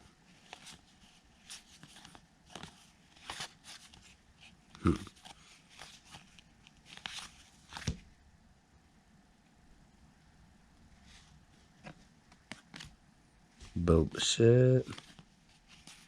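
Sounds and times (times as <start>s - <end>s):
trading cards flipped through: 11.8s - 13.0s.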